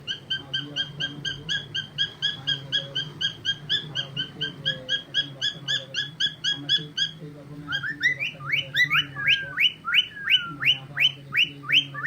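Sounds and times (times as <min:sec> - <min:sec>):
cockatiel chirping: 0:00.0 - 0:12.0.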